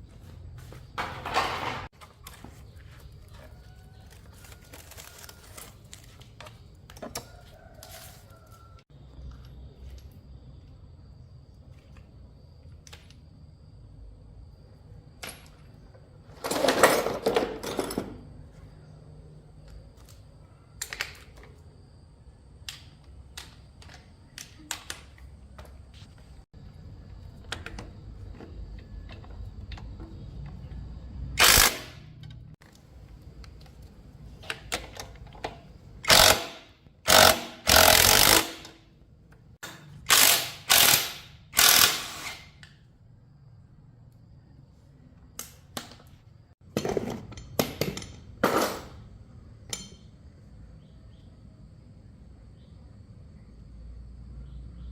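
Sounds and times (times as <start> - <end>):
ratchet wrench ratcheting: 31.4 - 32.4, 36.0 - 38.8, 40.1 - 42.6
loud rasping bursts: 36.0 - 38.7.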